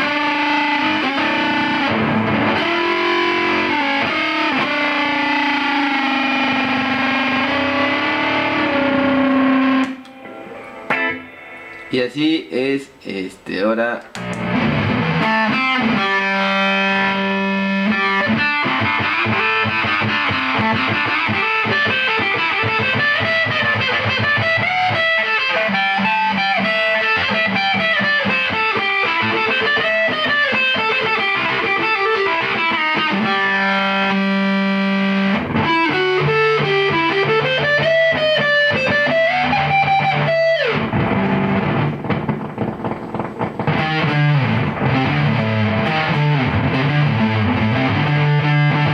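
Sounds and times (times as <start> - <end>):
distorted electric guitar: 0.0 - 48.9.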